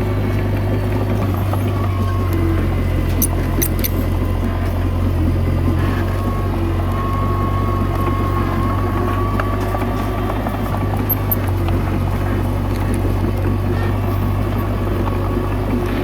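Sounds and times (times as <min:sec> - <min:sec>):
faint high whine: 0:00.0 - 0:12.5
diesel engine running: 0:00.0 - 0:16.0.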